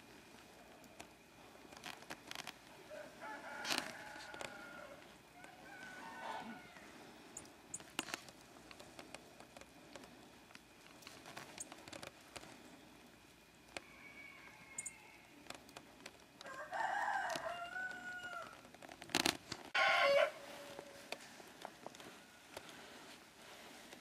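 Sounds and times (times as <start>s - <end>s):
rooster crowing: 2.8s - 7.1s, 13.8s - 15.4s, 16.4s - 18.6s, 19.7s - 21.2s
faint clicks: 14.8s - 16.6s.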